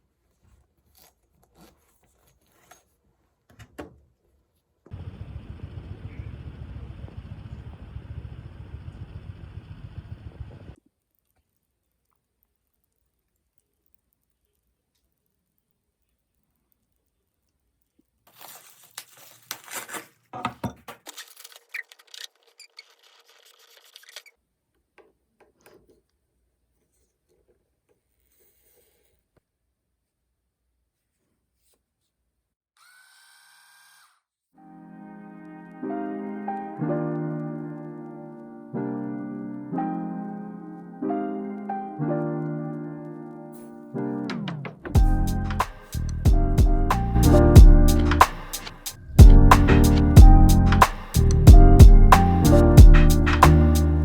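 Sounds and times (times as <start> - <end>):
rustling and crackling: 0.0 - 4.9, 10.7 - 29.4.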